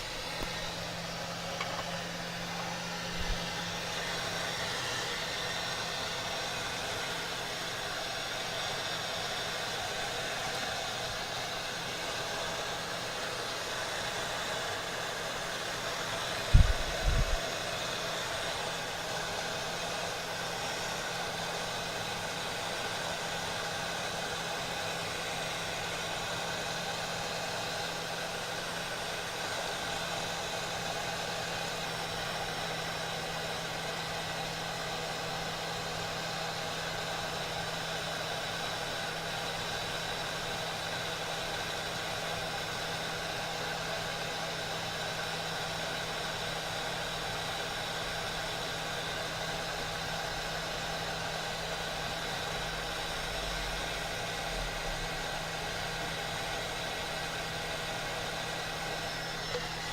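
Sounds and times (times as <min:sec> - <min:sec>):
steady machine hum: 0:00.0 - 0:08.5, 0:09.8 - 0:19.1.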